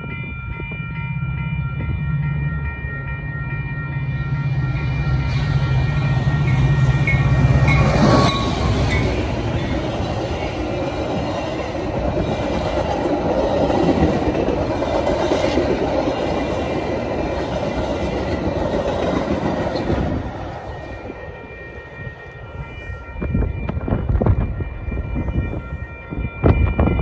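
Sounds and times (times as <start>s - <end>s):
diesel locomotive engine drone: 0.0s - 27.0s
train cars rumbling: 0.0s - 27.0s
clattering train wheels: 7.6s - 20.6s.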